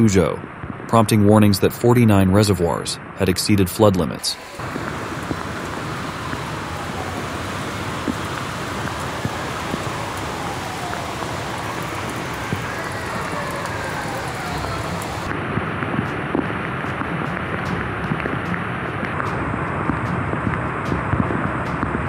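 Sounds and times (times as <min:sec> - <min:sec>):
rushing floodwater: 0:04.2 - 0:15.3
heavy rain: 0:04.2 - 0:21.7.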